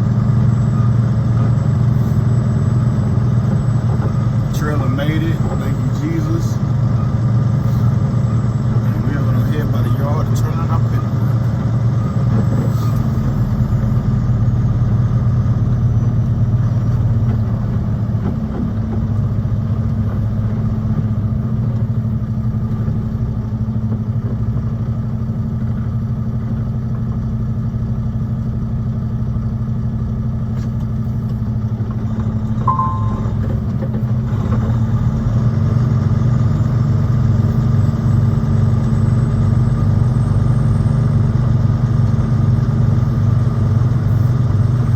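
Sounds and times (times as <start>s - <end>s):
truck diesel engine droning: 0.0s - 44.9s
short high beep: 32.7s - 33.4s.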